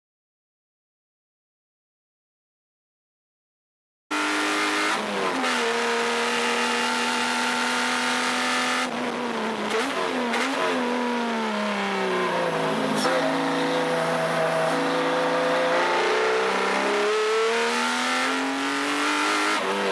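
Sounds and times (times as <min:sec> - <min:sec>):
car engine under load: 0:04.1 - 0:19.9.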